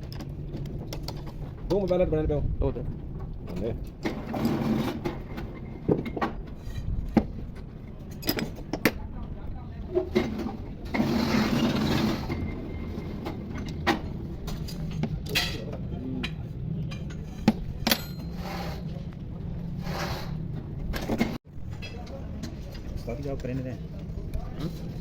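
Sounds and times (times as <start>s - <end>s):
metal tools clinking: 10.9s - 15.8s, 16.9s - 18.9s.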